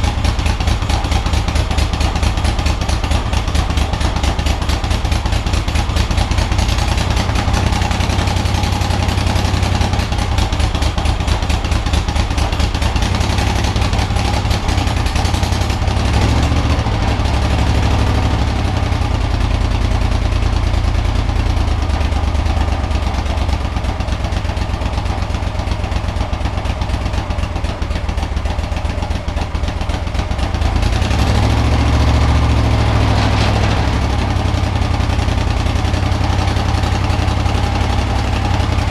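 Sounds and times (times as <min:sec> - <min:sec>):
motorcycle engine exhaust rumble: 0:00.0 - 0:38.9.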